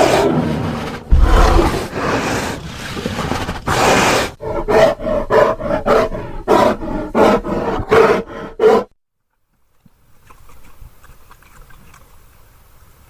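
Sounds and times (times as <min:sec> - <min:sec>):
bear roaring and growling: 0:00.0 - 0:08.9.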